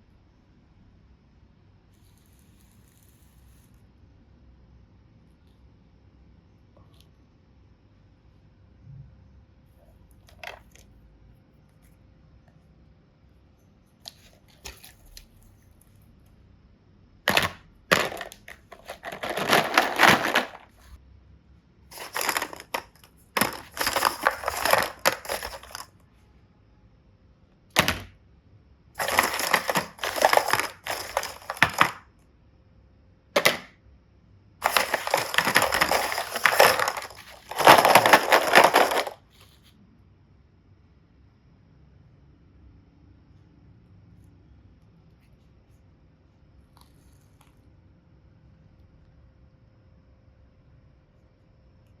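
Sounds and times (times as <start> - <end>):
slime crackling and crinkling: 17.3 - 21.0, 21.9 - 25.9, 29.0 - 32.0, 34.6 - 39.2.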